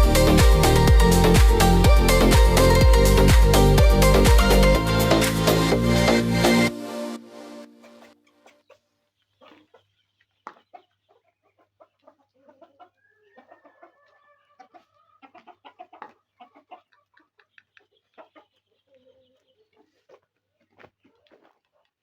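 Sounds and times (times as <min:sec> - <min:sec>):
chickens clucking softly: 0:07.8 - 0:22.0
drawn-out hen call: 0:10.7 - 0:21.9.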